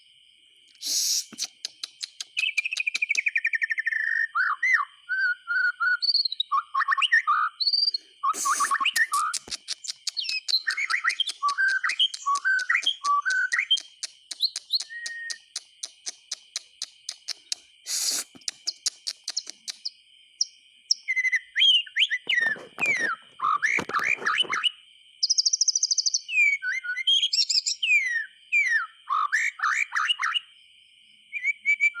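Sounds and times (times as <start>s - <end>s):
rapid ticking bird notes: 0.7s - 3.4s, 8.4s - 19.9s
bird singing whistled phrases: 0.8s - 19.9s, 20.9s - 30.4s, 31.3s - 32.0s.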